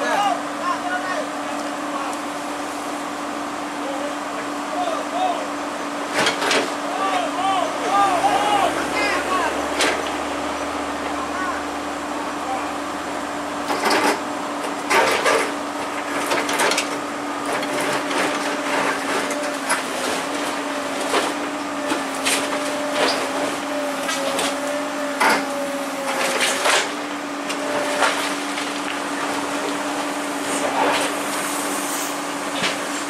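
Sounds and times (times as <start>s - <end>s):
excavator engine and hydraulics hum: 0.0s - 33.0s.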